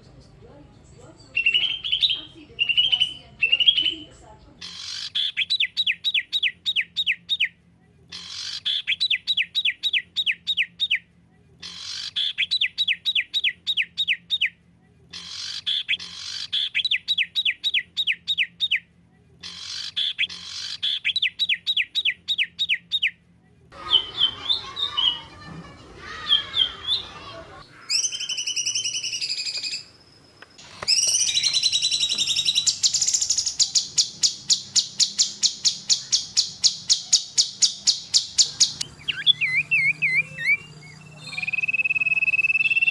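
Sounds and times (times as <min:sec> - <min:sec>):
songbird trilling and chirping: 0:00.1 - 0:07.2, 0:23.8 - 0:25.3, 0:30.8 - 0:42.9.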